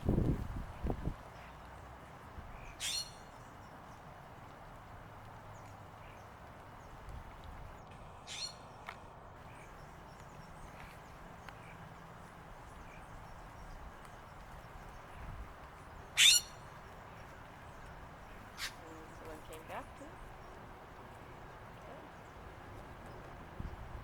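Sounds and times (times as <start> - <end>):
faint bird chirps: 2.5 - 4.0, 8.2 - 8.8, 15.9 - 20.7
harsh bird calls: 2.5 - 4.2, 5.4 - 24.0.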